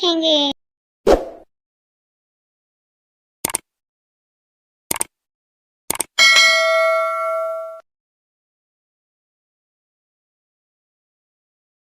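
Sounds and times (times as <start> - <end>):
bell-like chime ringing: 6.2 - 7.8.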